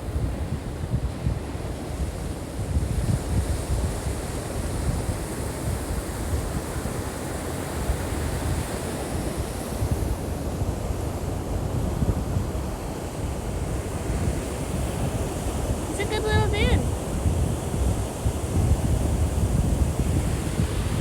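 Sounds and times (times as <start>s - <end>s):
ocean surf washing on beach: 0.0s - 21.0s
wind buffeting microphone: 11.5s - 21.0s.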